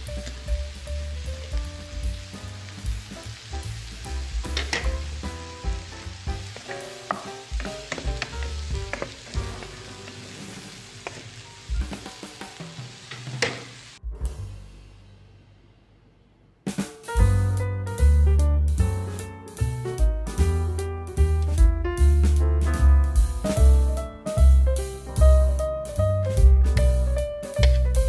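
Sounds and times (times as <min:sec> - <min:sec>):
vegetables sizzling in a frying pan: 0:00.0 - 0:14.0, 0:27.6 - 0:27.9.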